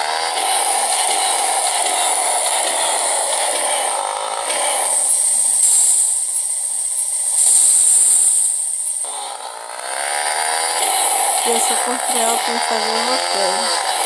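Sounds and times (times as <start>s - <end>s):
motorcycle engine running: 0.0s - 8.1s
steady high hiss: 4.9s - 9.1s.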